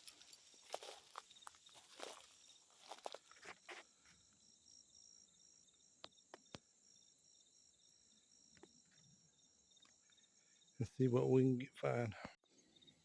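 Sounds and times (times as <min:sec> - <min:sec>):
footsteps crunching through dry brush: 0:00.0 - 0:03.9
high insect chirping: 0:00.0 - 0:11.4, 0:12.5 - 0:13.0.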